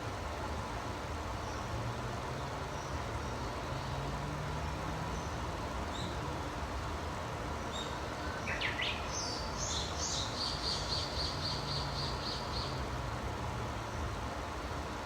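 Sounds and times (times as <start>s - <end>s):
songbird singing: 4.7s - 6.4s, 7.6s - 13.0s.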